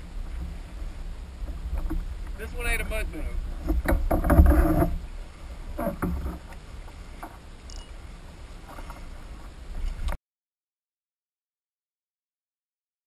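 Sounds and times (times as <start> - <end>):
microphone handling noise: 3.4 - 5.0, 5.7 - 6.6
knocks against kayak hull: 3.6 - 5.0.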